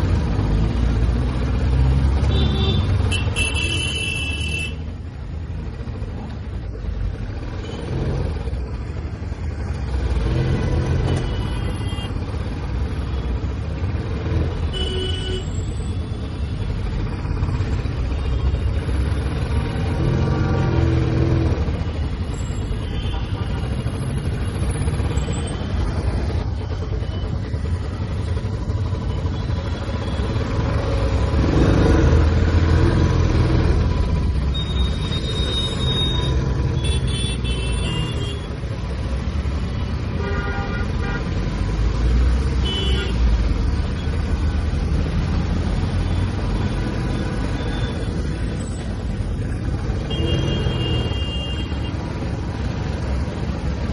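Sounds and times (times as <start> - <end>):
motorcycle engine rumbling: 0.0 - 53.9
vehicle horns honking: 2.2 - 4.9, 11.1 - 12.2, 14.7 - 15.9, 34.5 - 38.6, 40.2 - 41.3, 42.6 - 43.2, 50.0 - 51.9.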